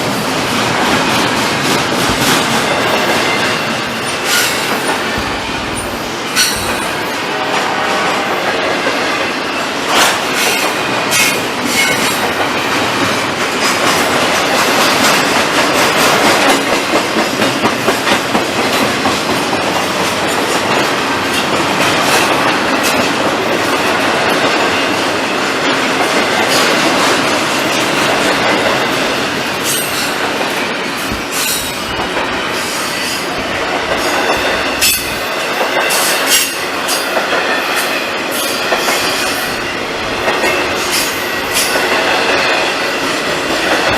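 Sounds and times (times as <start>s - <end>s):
train wheels clacking over rails: 0.0s - 43.9s
metallic rattling: 0.8s - 7.2s, 28.8s - 36.6s.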